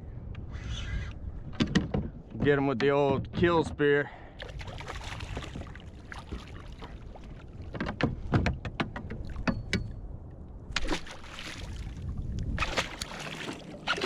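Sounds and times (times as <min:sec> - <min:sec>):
knocks and taps on kayak: 0:07.7 - 0:09.9.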